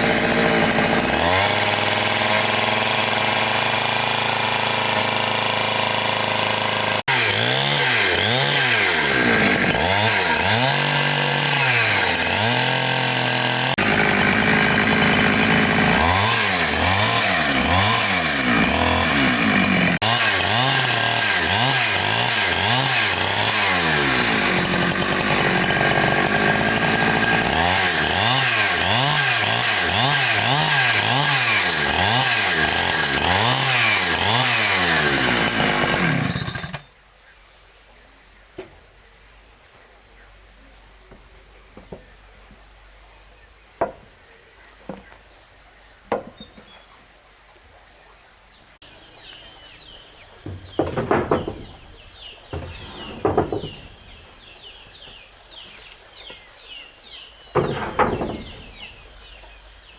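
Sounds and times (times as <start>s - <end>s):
chainsaw cutting wood: 0.0s - 36.9s, 49.2s - 55.6s, 56.2s - 59.7s.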